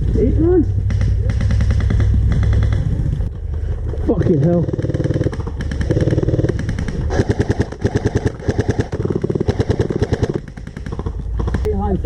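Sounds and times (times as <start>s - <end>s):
airsoft gun firing full auto: 0.9s - 2.9s, 4.8s - 11.7s.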